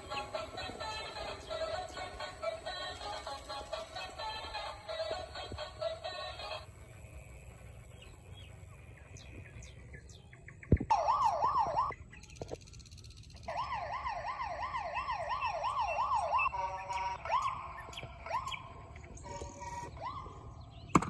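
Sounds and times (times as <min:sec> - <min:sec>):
toy police siren wailing: 0:10.9 - 0:11.9, 0:13.4 - 0:20.7.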